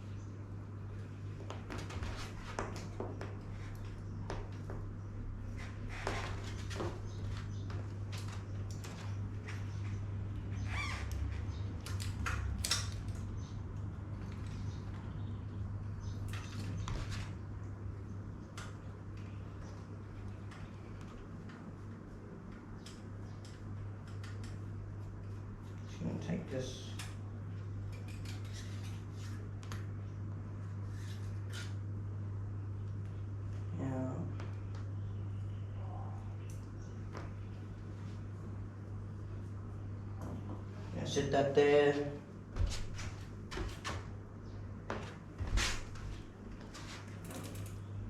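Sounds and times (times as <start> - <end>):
steady low hum: 0.0 - 48.0
clicks and scrapes of bike parts: 27.9 - 29.8, 30.9 - 31.8, 46.6 - 47.8.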